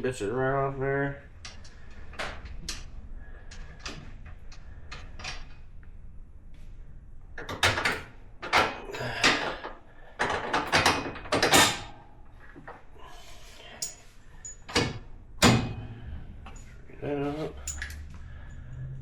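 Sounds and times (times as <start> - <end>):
hand tools and metal parts clinking: 12.5 - 19.0.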